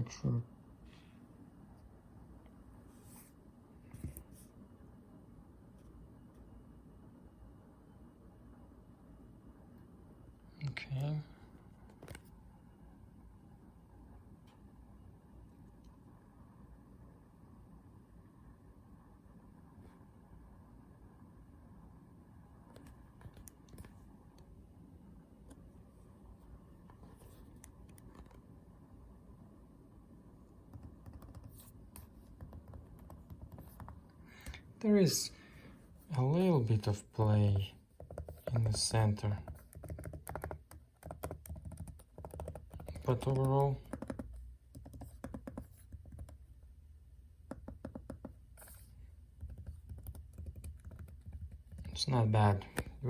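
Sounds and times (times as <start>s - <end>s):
laptop keys clicking: 30.7s - 31.6s, 38.0s - 38.7s, 39.4s - 46.4s, 49.4s - 51.9s.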